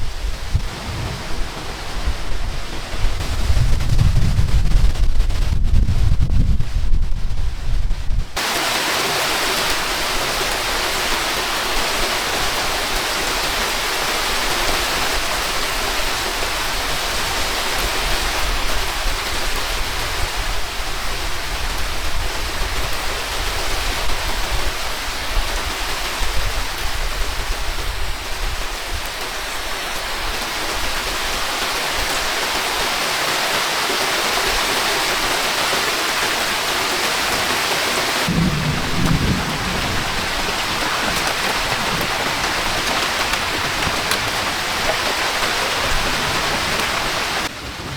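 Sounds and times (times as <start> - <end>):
heavy rain falling: 0.0 - 7.0, 7.6 - 47.9
wind rumble on microphone: 0.0 - 8.4, 10.0 - 32.6, 38.2 - 47.9.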